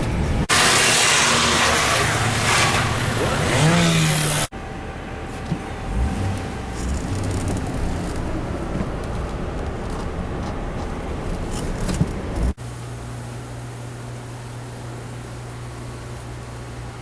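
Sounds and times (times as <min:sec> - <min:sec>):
steady low hum: 0:00.0 - 0:17.0
car driving rumble: 0:02.1 - 0:12.6.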